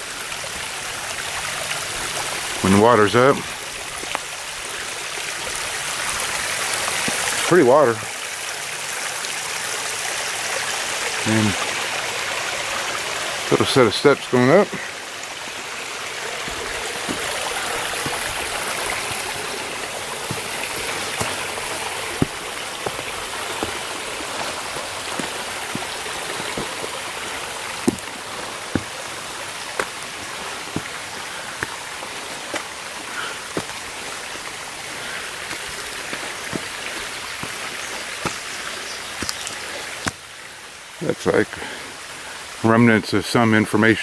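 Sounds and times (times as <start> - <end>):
footsteps on steps and rock: 0.0 - 7.5, 14.5 - 40.4
stream running over rocks: 0.0 - 44.0.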